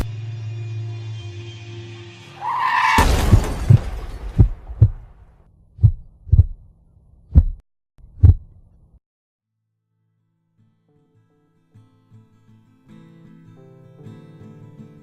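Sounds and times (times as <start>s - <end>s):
heartbeat sound effect: 4.4s - 5.0s, 5.8s - 6.7s, 7.3s - 8.6s.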